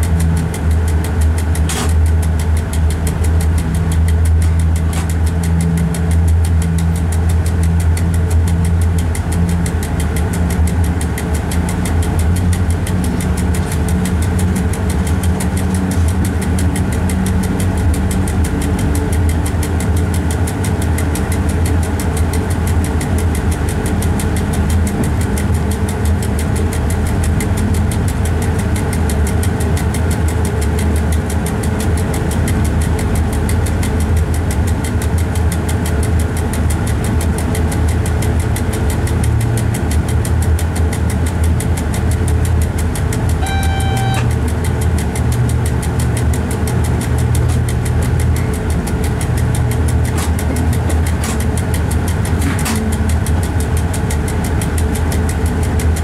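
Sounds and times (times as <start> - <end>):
train drone from cab: 0.0 - 56.0
short electronic beep: 43.4 - 44.4.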